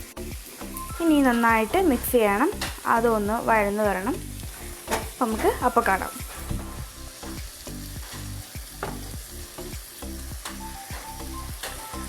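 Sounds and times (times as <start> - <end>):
onions sizzling in hot oil: 0.0 - 12.0
spoon scraping a pan: 4.2 - 9.2, 10.4 - 12.0.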